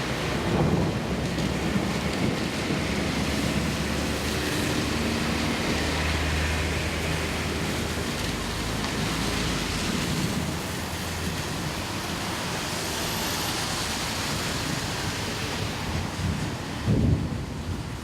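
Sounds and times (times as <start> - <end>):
heavy rain hiss: 0.0 - 18.0.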